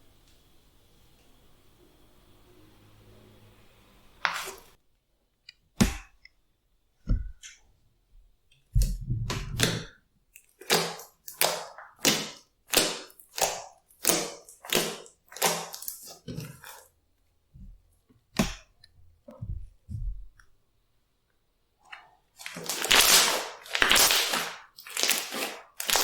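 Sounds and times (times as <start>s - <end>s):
slime squelching: 4.2s - 4.8s, 8.7s - 17.0s, 21.8s - 26.0s
slime crackling: 8.8s - 16.8s, 22.4s - 26.0s.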